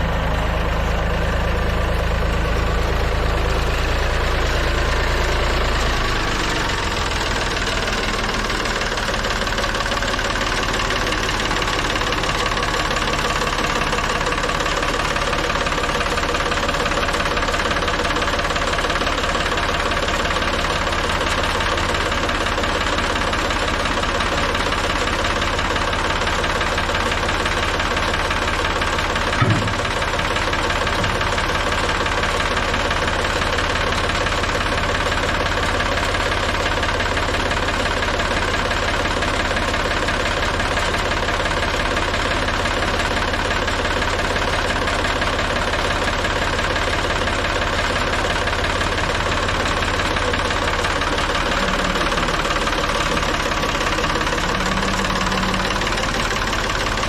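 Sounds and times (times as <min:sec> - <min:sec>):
tractor engine idling: 0:00.0 - 0:57.0
short thump: 0:29.3 - 0:30.1.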